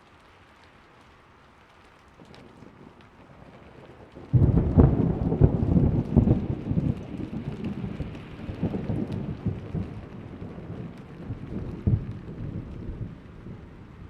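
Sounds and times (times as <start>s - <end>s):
rain falling: 0.0s - 14.0s
thunder rumbling: 2.4s - 14.0s
sharp thunder crack: 4.3s - 7.9s.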